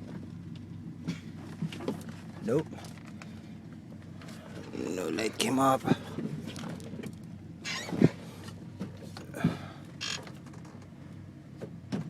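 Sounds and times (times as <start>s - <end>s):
rattling clicks from controls: 6.2s - 12.0s.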